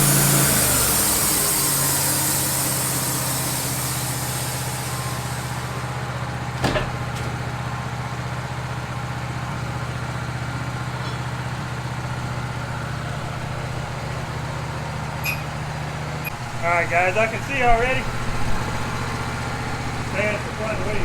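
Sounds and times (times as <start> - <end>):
high hiss: 0.0 - 6.1
sawmill engine running: 0.0 - 21.0.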